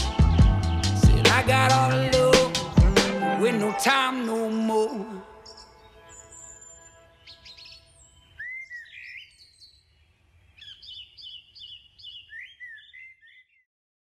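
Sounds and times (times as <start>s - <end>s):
music track: 0.0s - 7.3s
songbirds singing: 4.4s - 13.7s.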